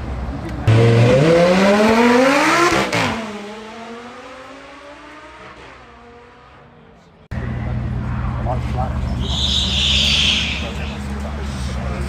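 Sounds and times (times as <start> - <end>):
car engine accelerating hard: 0.0 - 6.7.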